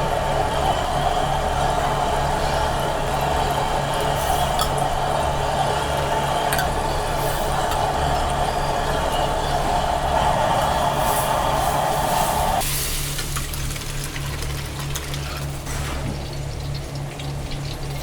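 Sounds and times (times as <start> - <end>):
whirring hum: 0.0 - 12.6.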